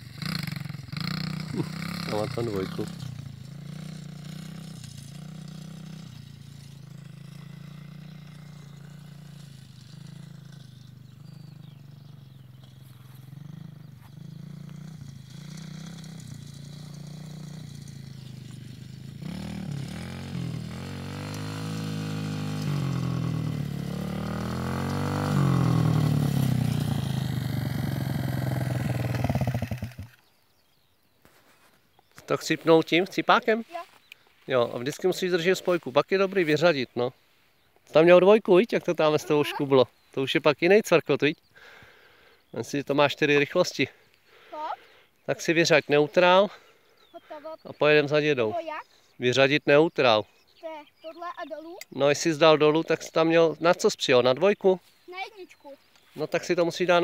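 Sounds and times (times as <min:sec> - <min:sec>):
dirt bike engine revving: 0:00.0 - 0:30.3, 0:41.6 - 0:47.4.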